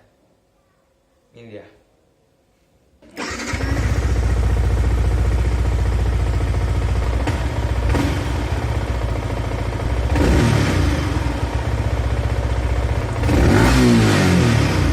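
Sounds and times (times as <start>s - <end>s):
motorcycle engine starting and idling: 3.0s - 14.9s.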